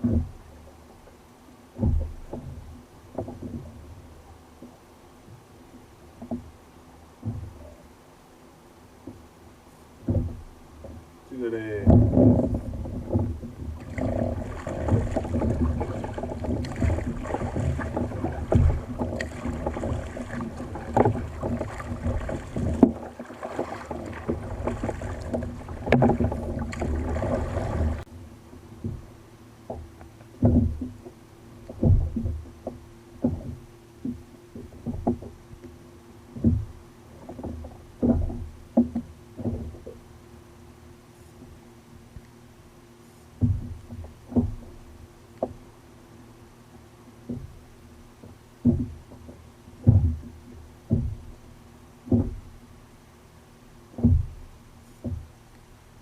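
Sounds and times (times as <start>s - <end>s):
knocks against kayak hull: 0.0s - 0.4s, 1.8s - 3.7s, 10.0s - 11.0s, 11.7s - 28.0s, 28.8s - 35.7s, 36.3s - 40.0s, 43.4s - 45.7s, 48.2s - 51.4s, 52.0s - 52.5s, 53.9s - 55.3s
water splashing around kayak: 0.0s - 56.0s
separate water splashes: 10.0s - 28.2s, 43.1s - 56.0s.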